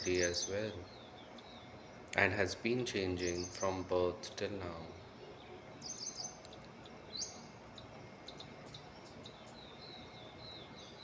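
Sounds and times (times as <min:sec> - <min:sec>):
birds chirping: 0:00.0 - 0:11.0
faint steady hiss: 0:00.0 - 0:11.0.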